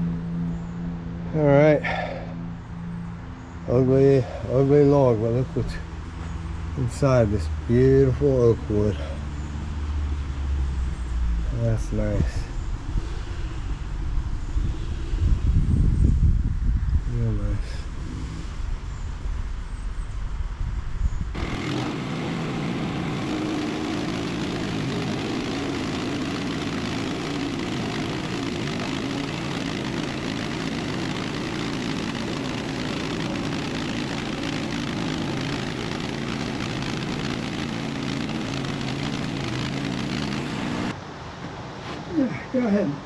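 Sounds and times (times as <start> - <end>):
sawmill engine running: 21.4 - 41.0.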